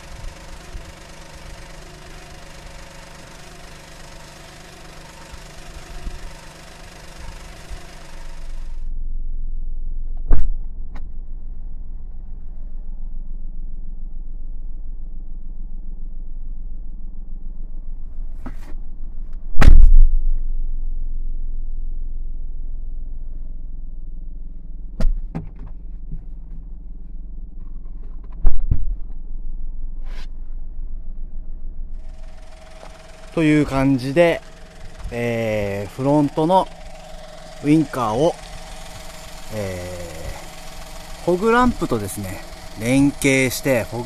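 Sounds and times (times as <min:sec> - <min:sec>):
car engine idling: 0:00.0 - 0:08.9, 0:31.4 - 0:44.0.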